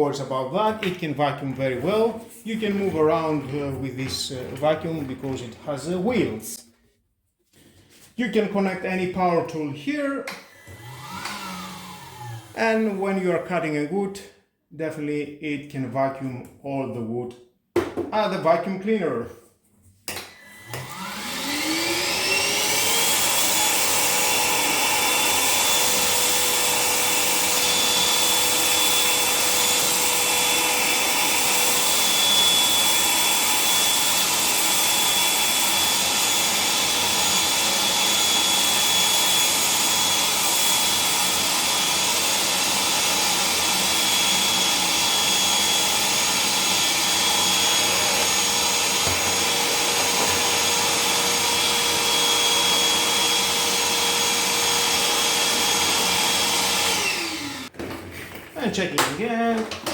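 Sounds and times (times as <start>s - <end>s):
vacuum cleaner motor running: 10.3s - 12.6s, 20.2s - 57.8s.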